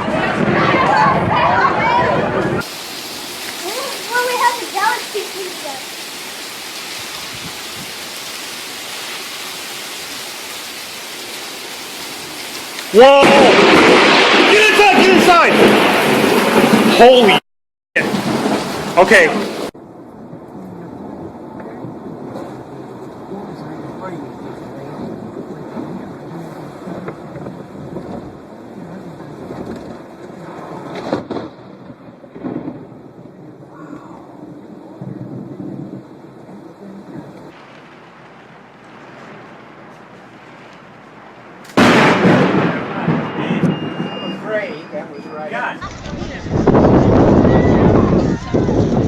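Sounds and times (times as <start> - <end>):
loud thunder crack: 0.0 - 8.2, 11.0 - 17.4, 18.0 - 23.3, 29.4 - 36.5, 41.6 - 44.6, 45.8 - 49.0
rumbling thunder: 0.0 - 17.4, 18.0 - 44.5, 45.8 - 49.0
steady rain hiss: 2.5 - 17.4, 18.0 - 45.8.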